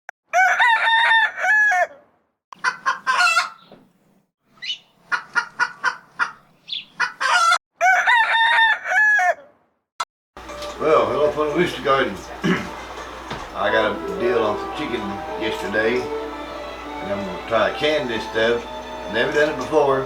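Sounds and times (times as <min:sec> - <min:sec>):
rooster crowing: 0:00.3 - 0:02.0, 0:07.3 - 0:09.5.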